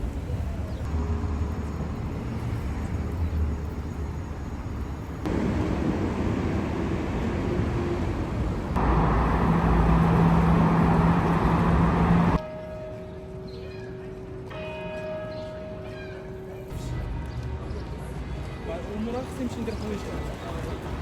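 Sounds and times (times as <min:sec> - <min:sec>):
low vehicle rumble: 0:00.0 - 0:12.4.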